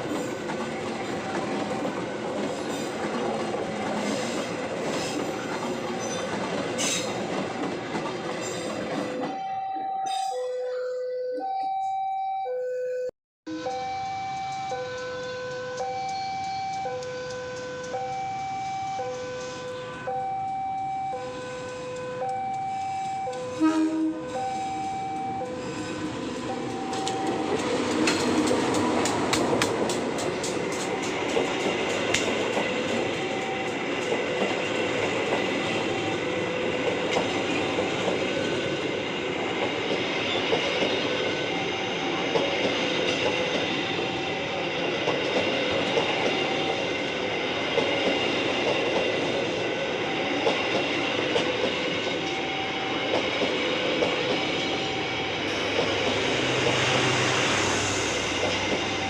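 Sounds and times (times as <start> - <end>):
train rolling rumble: 0.0 - 9.4, 13.7 - 59.0
train wheels clickety-clack: 0.0 - 9.4, 14.4 - 23.5, 25.4 - 59.0
level crossing alarm beeps: 9.2 - 27.7, 33.0 - 34.0, 49.9 - 50.7, 52.2 - 53.2, 54.7 - 56.3, 58.5 - 59.0.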